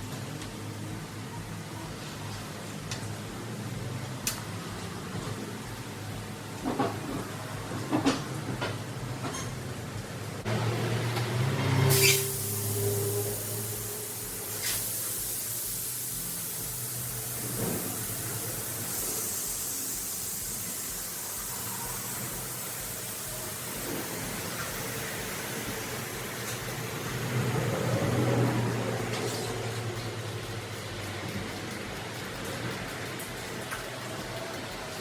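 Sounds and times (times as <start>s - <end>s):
even hiss: 11.6s - 35.0s
low machine hum: 15.6s - 35.0s.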